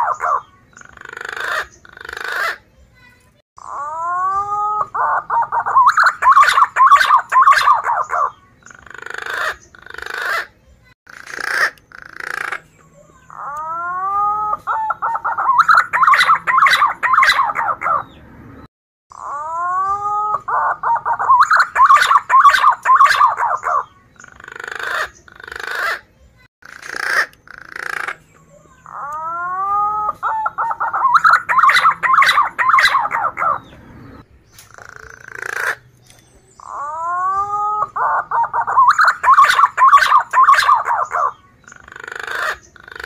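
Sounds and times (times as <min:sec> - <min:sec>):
pigeon whistled song: 0:03.6 - 0:10.5, 0:13.3 - 0:18.2, 0:19.2 - 0:26.0, 0:27.2 - 0:43.0.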